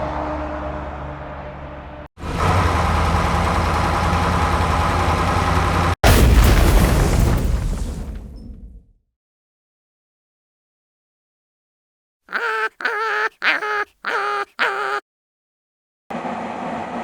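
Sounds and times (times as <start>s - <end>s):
vehicle engine rumble: 1.7s - 6.0s.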